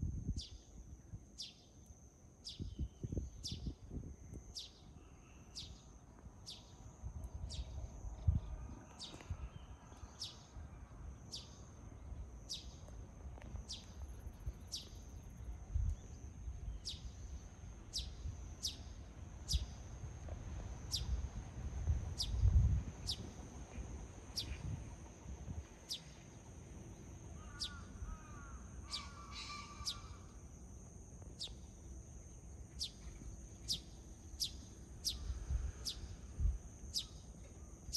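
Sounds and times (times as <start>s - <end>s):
wind rumble on microphone: 0.0s - 1.5s, 2.4s - 5.0s, 6.8s - 26.2s, 32.8s - 37.2s
harsh lower bird call: 27.4s - 30.3s.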